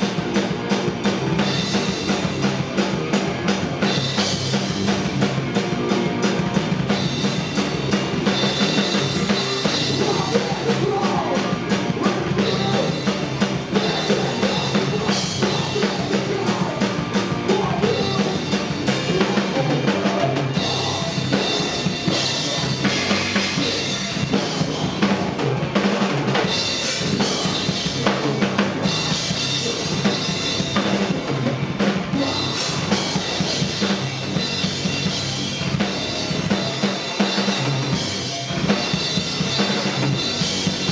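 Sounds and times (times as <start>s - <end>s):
rock band playing live: 0.0s - 40.9s.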